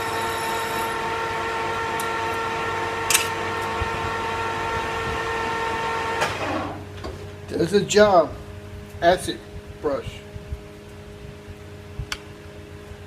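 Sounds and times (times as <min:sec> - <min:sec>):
metal lathe whining: 0:00.0 - 0:06.8.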